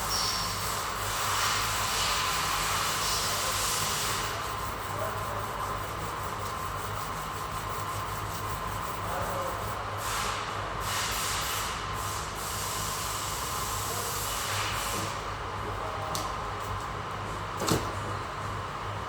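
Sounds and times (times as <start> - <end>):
sandpaper scratching on panel: 0.3 - 10.4.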